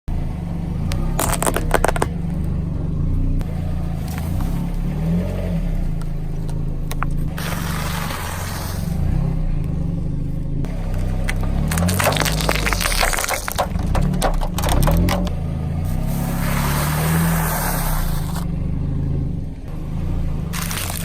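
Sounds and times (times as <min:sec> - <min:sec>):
car engine running: 0:00.0 - 0:21.0
crackling noise: 0:00.8 - 0:18.6
sharp cracks: 0:00.9 - 0:02.6, 0:10.6 - 0:18.5, 0:20.5 - 0:21.0.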